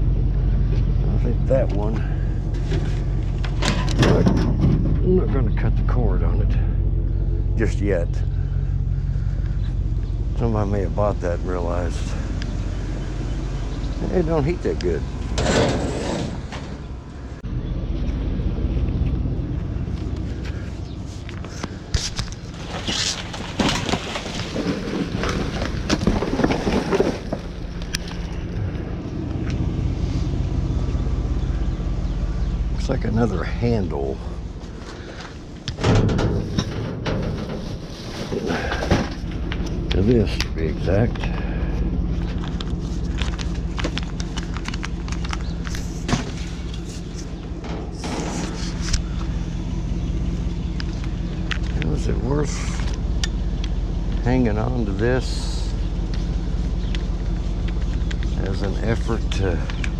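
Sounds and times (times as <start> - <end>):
vehicle engine running: 0.0 - 59.9
clattering and knocking: 2.5 - 5.4, 22.7 - 28.3, 35.7 - 40.0
rustling scrape: 15.4 - 16.6, 21.0 - 28.2, 36.1 - 39.2, 48.0 - 49.0
items clattering and knocking: 21.4 - 28.4.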